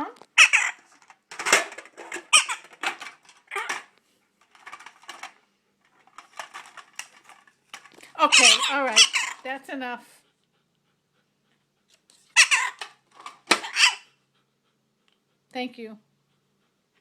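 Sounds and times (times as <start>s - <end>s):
macaw squeaky calls: 0.4s - 0.8s, 2.3s - 2.6s, 8.3s - 9.4s, 12.4s - 12.8s, 13.6s - 14.1s.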